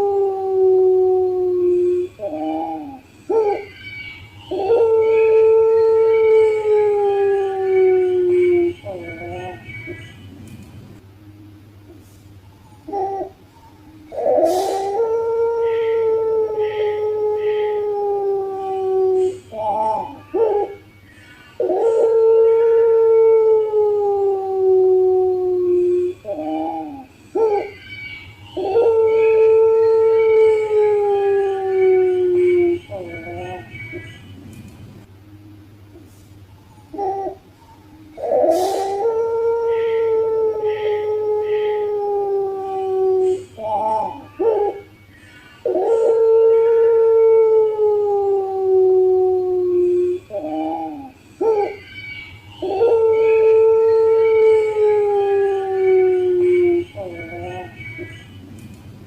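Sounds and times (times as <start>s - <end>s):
dove cooing: 12.6s - 20.9s, 36.6s - 42.0s.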